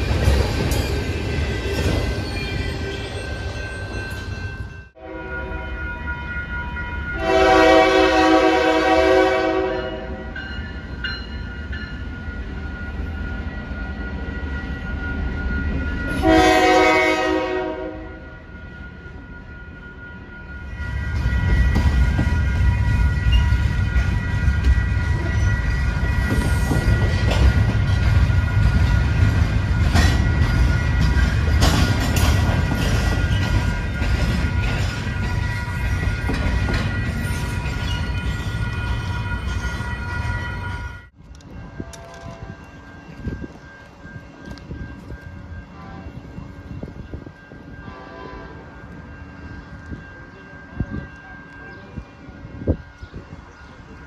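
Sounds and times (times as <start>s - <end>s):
train rumbling past: 0.0s - 54.0s
train air horn blasts: 5.0s - 5.8s, 7.2s - 10.2s, 16.1s - 18.3s, 47.8s - 48.7s.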